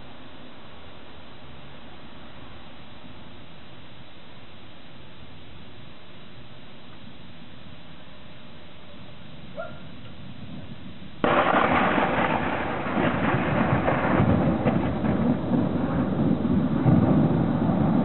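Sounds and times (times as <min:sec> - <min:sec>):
steady low hiss: 0:00.0 - 0:18.0
thunder clap and rumble: 0:11.2 - 0:18.0.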